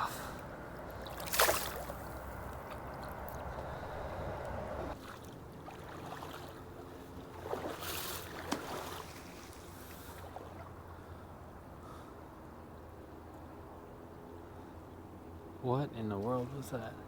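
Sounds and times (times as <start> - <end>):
running water rushing: 0.0 - 6.6
water splashing: 0.1 - 10.7
sharp water slap: 1.1 - 2.2, 7.4 - 9.2.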